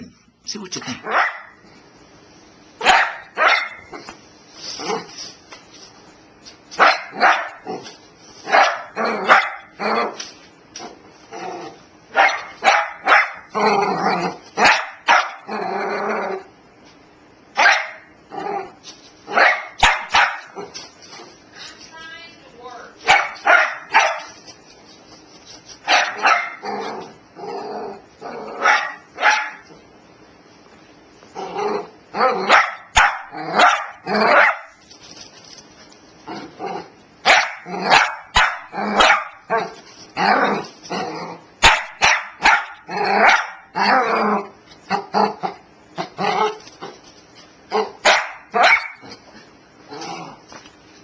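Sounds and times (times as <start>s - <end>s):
dog barking: 1.0s - 1.6s, 2.8s - 4.0s, 6.8s - 7.7s, 8.5s - 9.8s, 12.1s - 13.5s, 14.6s - 15.5s, 17.6s - 18.1s, 19.3s - 20.7s, 23.0s - 24.4s, 25.8s - 26.6s, 28.6s - 29.7s, 32.4s - 34.8s, 37.2s - 39.8s, 41.6s - 43.7s, 47.8s - 49.0s.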